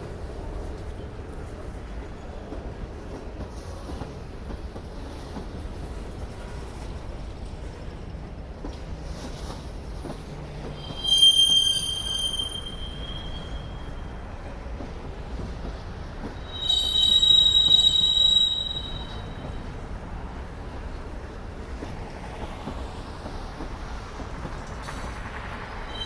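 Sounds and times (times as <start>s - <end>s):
freight train rumbling past: 0.0s - 26.0s
steel wheel squeal on rails: 10.6s - 14.6s, 16.2s - 19.8s, 24.9s - 26.0s.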